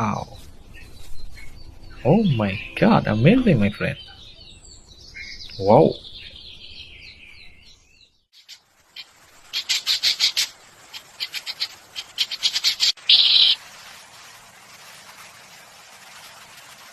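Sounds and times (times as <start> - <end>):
bird chirping: 0.0 - 13.6
harsh bird call: 9.5 - 13.6.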